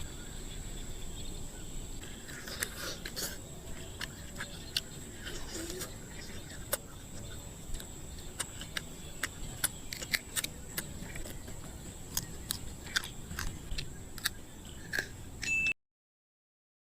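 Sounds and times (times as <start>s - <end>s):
shell cracking and crunching: 2.2s - 15.2s.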